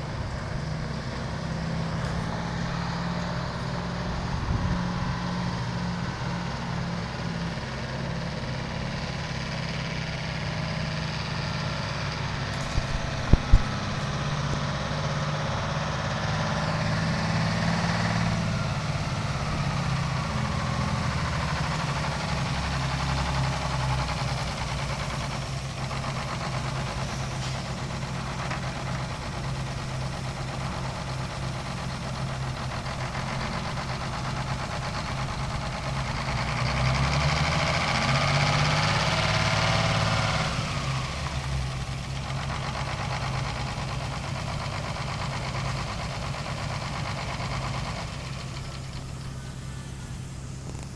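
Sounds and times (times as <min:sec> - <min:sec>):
engine idling: 0:00.0 - 0:50.9.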